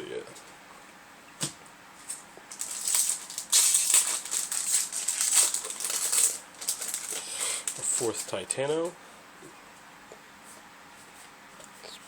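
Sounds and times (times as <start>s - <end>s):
foil pack crinkling: 2.0s - 8.5s.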